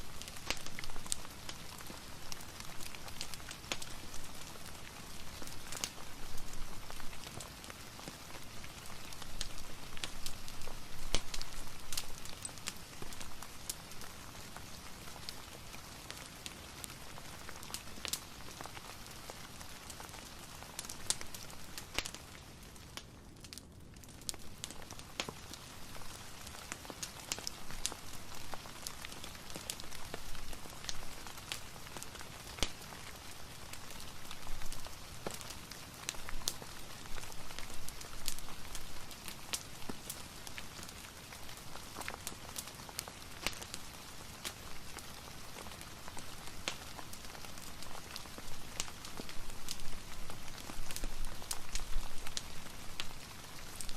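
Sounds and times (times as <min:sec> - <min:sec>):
rain hiss: 0:00.0 - 0:23.0, 0:24.3 - 0:53.9
wood fire crackling and popping: 0:00.0 - 0:53.9.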